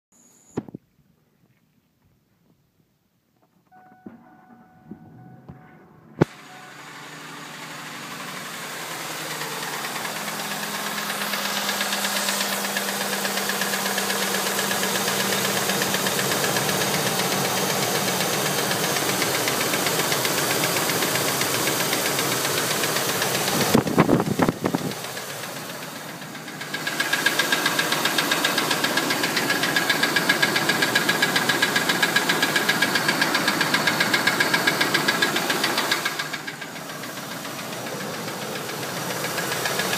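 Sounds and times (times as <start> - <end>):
thin steady whine: 3.7 - 7.2
engine idling with ticking: 6.2 - 39.9.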